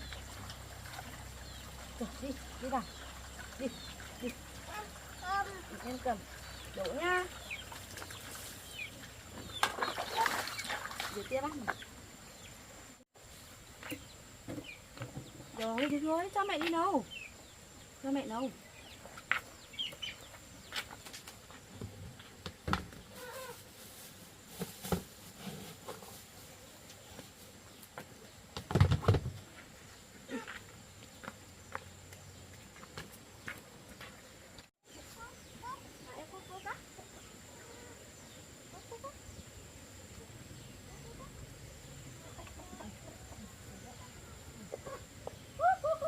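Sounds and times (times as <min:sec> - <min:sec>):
chickens clucking: 0:35.0 - 0:38.0, 0:38.7 - 0:39.4, 0:40.1 - 0:46.0.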